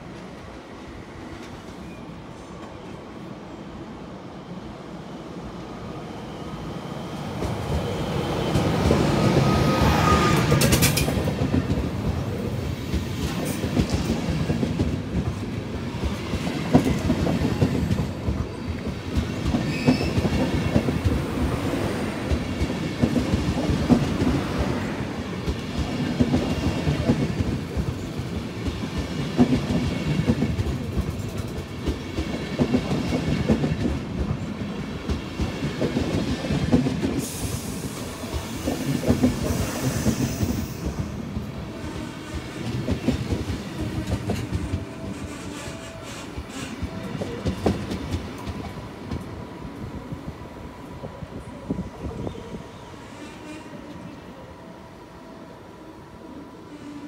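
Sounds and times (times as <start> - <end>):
electric locomotive passing: 0.0 - 57.0
wheels clickety-clack on rail joints: 7.4 - 41.5, 42.2 - 49.4.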